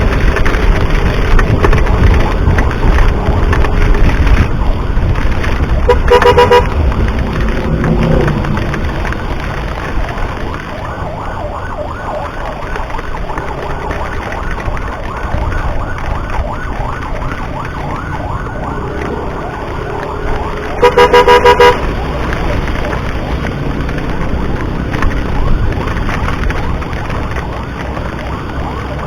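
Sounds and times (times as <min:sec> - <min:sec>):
low rumble: 0:00.0 - 0:29.0
ambulance siren yelping: 0:00.1 - 0:29.0
horn beeping: 0:05.8 - 0:06.8, 0:20.8 - 0:21.9.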